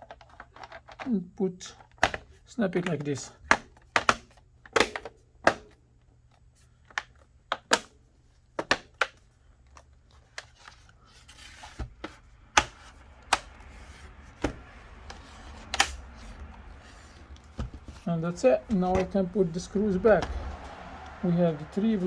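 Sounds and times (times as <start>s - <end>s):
plastic clips snapping: 1.9s - 5.8s, 6.9s - 8.0s, 12.1s - 13.8s, 14.4s - 18.1s
plastic rubbing: 8.4s - 22.0s.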